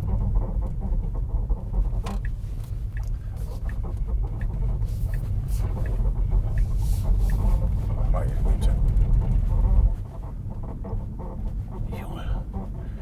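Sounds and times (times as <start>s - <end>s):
car driving on rough road: 0.0s - 13.0s.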